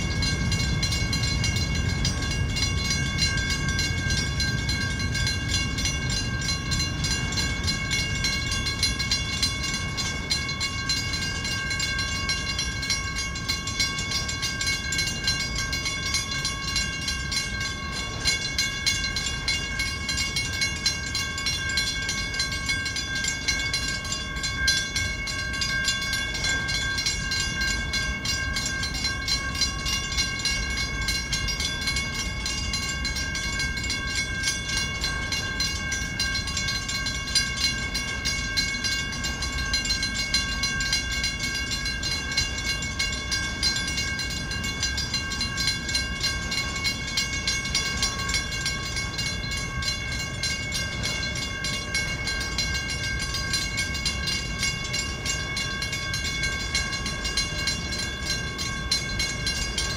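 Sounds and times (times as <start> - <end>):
high-pitched ringing tone: 0.0 - 59.9
train wheels rumbling on rails: 0.0 - 59.9.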